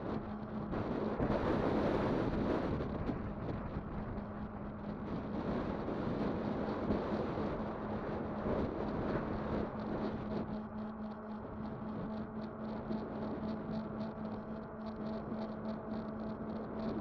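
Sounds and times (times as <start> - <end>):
steady low hum: 0.0 - 17.0
wind rushing over microphone: 0.0 - 17.0.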